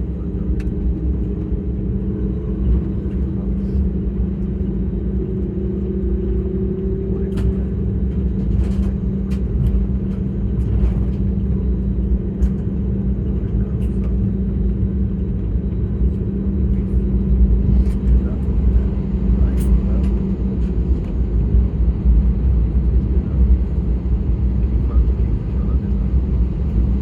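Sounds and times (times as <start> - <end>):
aircraft cabin rumble: 0.0 - 27.0
constant low hum: 0.0 - 27.0.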